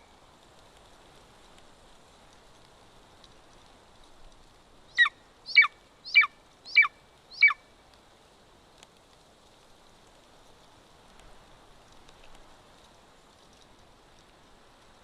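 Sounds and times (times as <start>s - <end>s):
eagle high downward calls: 4.9s - 7.6s.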